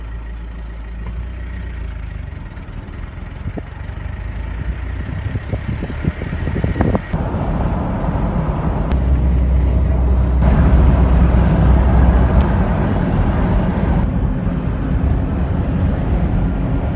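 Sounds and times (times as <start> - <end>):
vehicle engine rumbling: 0.0 - 16.9.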